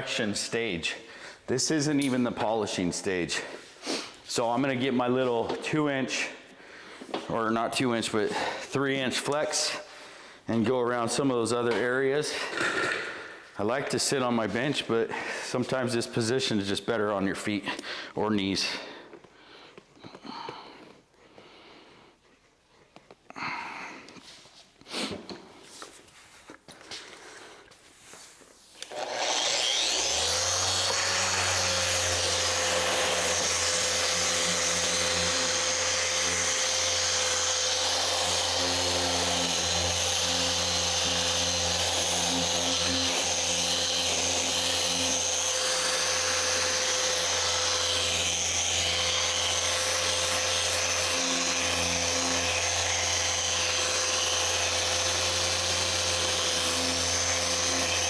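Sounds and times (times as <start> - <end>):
polisher whining: 28.8 - 58.0.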